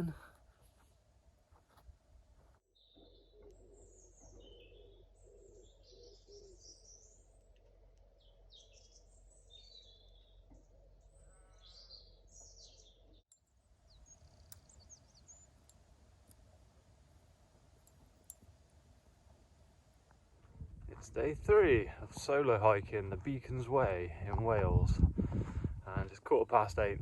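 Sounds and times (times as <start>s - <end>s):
songbirds chirping: 1.3s - 27.0s
faint high ticks and chirps: 12.2s - 16.8s, 17.5s - 18.6s.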